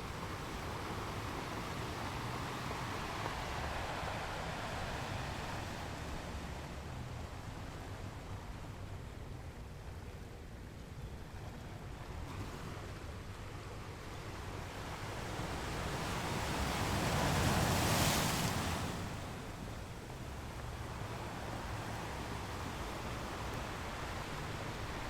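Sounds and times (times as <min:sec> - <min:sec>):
ocean wave breaking: 0:15.3 - 0:25.0.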